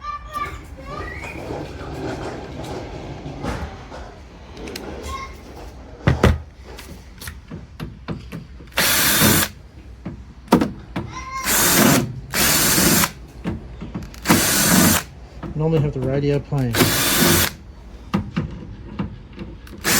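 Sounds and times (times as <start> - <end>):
cordless drill running: 8.7 - 9.6, 11.4 - 13.2, 14.1 - 15.2, 16.7 - 17.6, 19.7 - 19.9.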